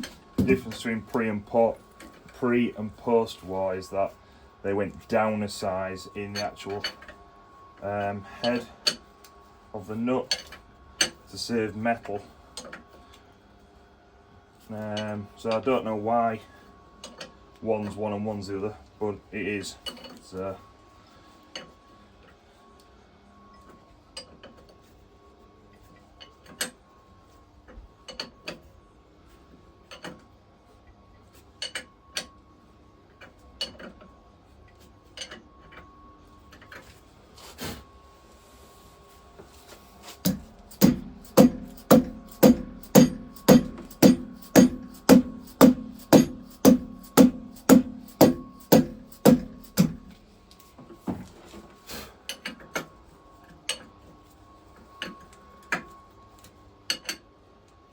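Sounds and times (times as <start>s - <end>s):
ringing ratchet clicks: 40.3s - 50.0s.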